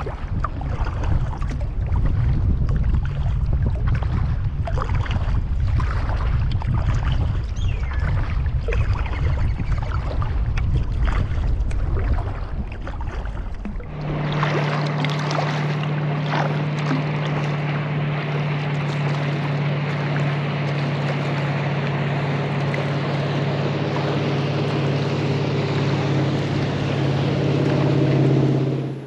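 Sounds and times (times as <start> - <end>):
water splashing around kayak: 0.0 - 29.0
wind on microphone: 0.0 - 29.0
steady low hum: 13.4 - 29.0.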